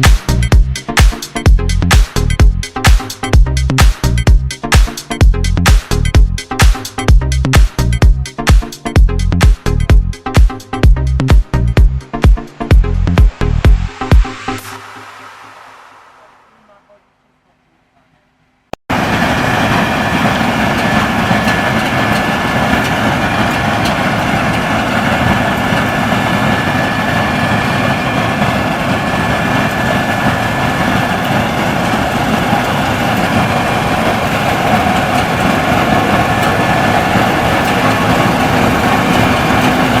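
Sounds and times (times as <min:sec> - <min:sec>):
faint high whine: 0:14.6 - 0:17.5
combine harvester running: 0:18.9 - 0:40.0.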